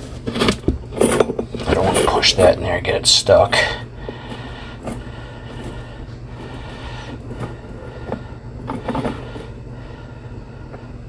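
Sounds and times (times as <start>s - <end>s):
steady low hum: 0.0s - 11.0s
cable knocking and scraping in pipe: 6.4s - 9.5s.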